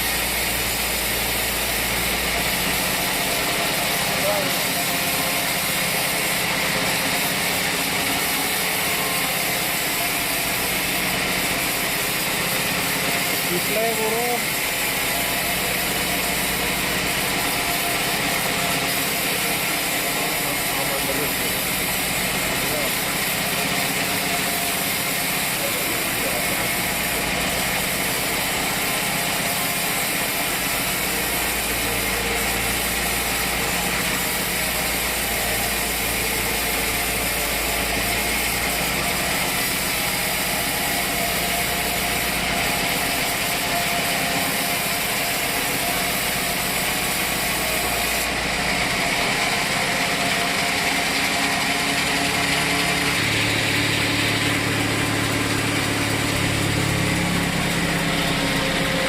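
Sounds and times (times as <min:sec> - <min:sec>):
hissing saw: 0:00.0 - 0:59.0
engine drone: 0:17.6 - 0:59.0.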